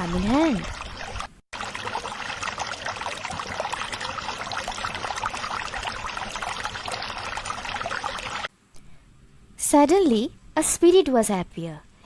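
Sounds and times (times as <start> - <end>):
water trickling and splashing: 0.0 - 8.5.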